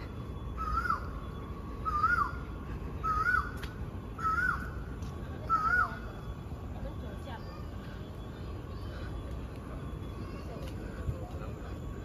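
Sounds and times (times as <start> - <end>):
bird whistling call: 0.5 - 1.2, 1.8 - 6.2.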